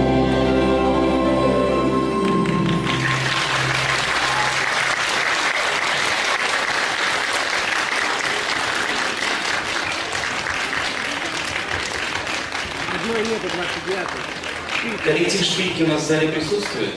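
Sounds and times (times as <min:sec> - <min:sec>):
music: 0:00.0 - 0:05.2
audience applauding: 0:02.1 - 0:16.9.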